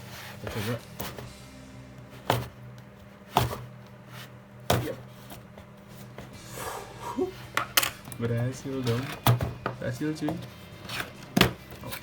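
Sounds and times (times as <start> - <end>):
soft scrape on cardboard: 0.0 - 1.4, 3.3 - 4.4.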